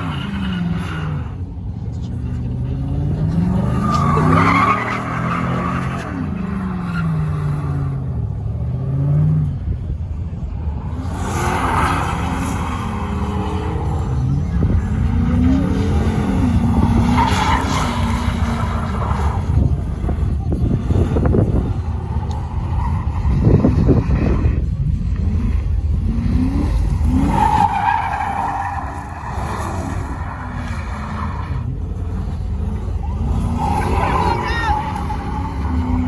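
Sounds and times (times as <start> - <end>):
vehicle engine revving: 0.0 - 36.0
tyre squeal: 11.1 - 24.7, 26.3 - 36.0.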